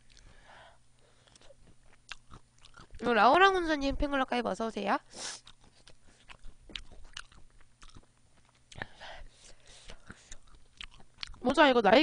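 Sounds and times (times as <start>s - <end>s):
quiet chewing: 0.0s - 0.4s, 1.0s - 3.0s, 5.3s - 11.5s.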